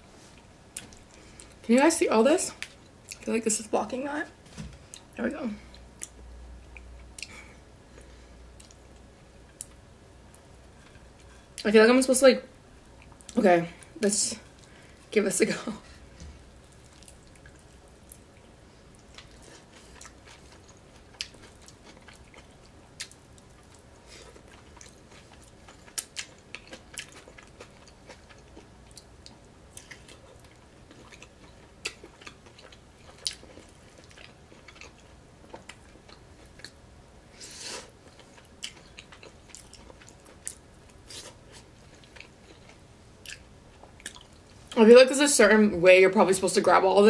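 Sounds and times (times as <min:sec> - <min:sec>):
person chewing food: 0:16.6 - 0:44.8.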